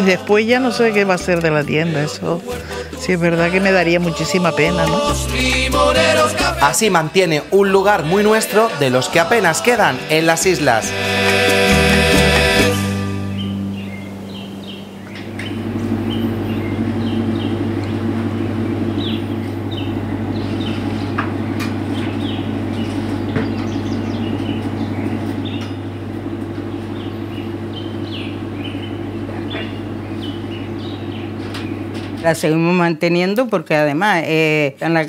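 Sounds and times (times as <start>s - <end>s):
low hum: 0.0s - 32.7s
small birds chirping: 13.2s - 32.3s.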